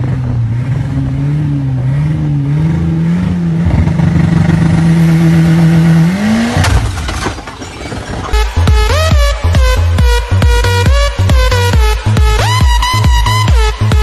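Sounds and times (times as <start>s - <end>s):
car engine running hard: 0.0s - 14.0s
sharp bangs and clatter: 6.4s - 9.2s.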